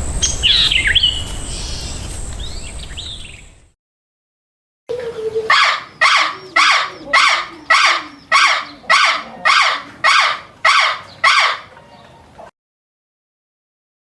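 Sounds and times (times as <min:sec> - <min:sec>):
animal harsh calls: 0:05.1 - 0:11.8.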